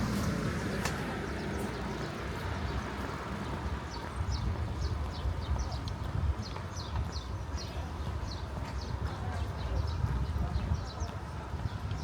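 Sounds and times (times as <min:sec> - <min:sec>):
traffic rumble: 0:00.0 - 0:08.3.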